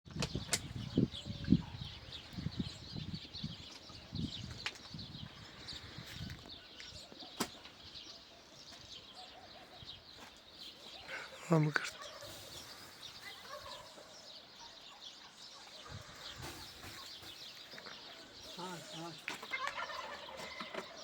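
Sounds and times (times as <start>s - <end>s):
small birds chirping: 0.1s - 21.0s.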